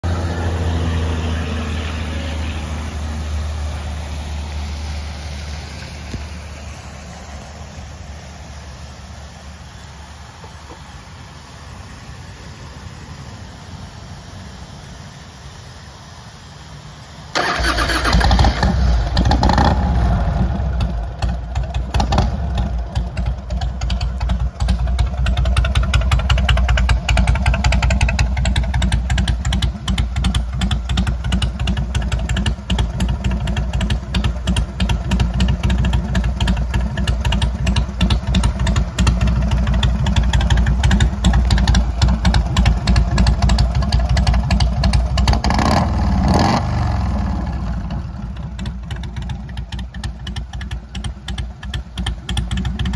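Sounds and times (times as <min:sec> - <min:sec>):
motorcycle engine starting and idling: 0:16.4 - 0:52.9.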